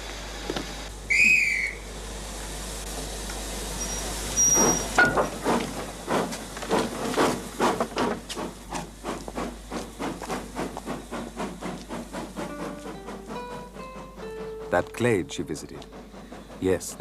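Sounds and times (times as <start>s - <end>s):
locomotive exhaust chuffs: 0.0s - 17.0s
steam whistle: 1.1s - 1.9s.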